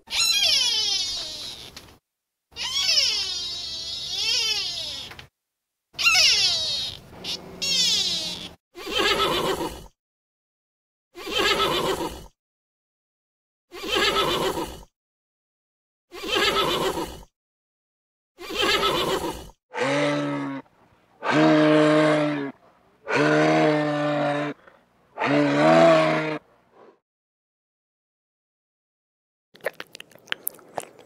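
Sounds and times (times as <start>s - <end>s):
moose calling: 6.0s - 9.2s
horse whinnying: 6.0s - 9.7s, 11.2s - 12.1s, 13.8s - 14.7s, 16.2s - 17.0s.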